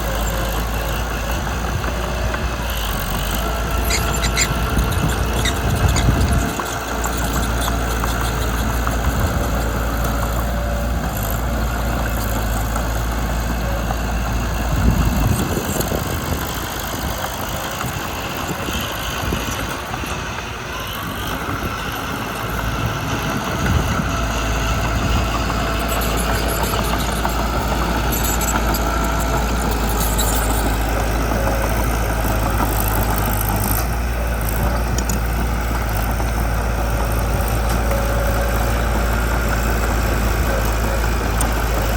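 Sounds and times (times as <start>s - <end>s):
bulldozer diesel engine droning: 0.0s - 41.9s.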